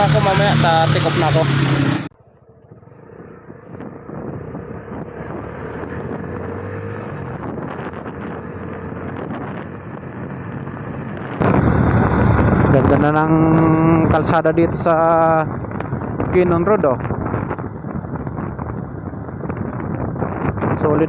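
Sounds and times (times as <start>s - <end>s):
faint motorcycle engine hum: 0.0s - 21.0s
wind rushing over microphone: 0.0s - 21.0s.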